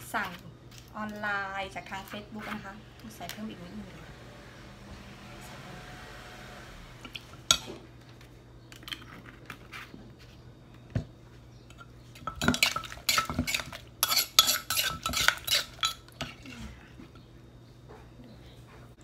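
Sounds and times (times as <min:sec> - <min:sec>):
metal spoon clinking in mortar: 0:12.3 - 0:16.0.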